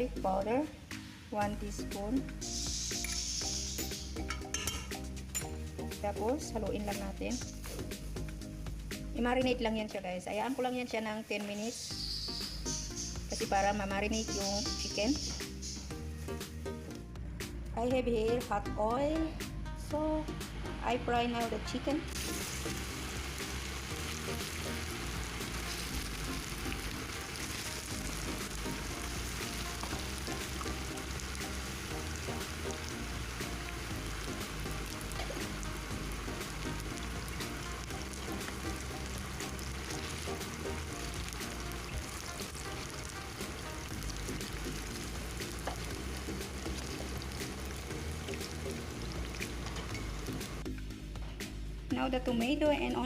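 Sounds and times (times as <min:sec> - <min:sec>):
chicken frying in hot oil: 0:22.1 - 0:50.6.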